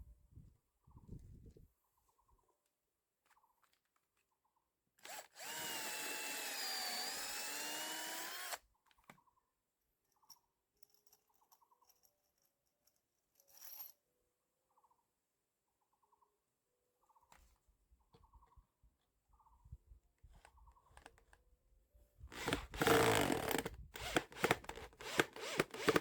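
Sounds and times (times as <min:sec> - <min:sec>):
power drill whining: 0:05.0 - 0:08.6, 0:22.3 - 0:26.0.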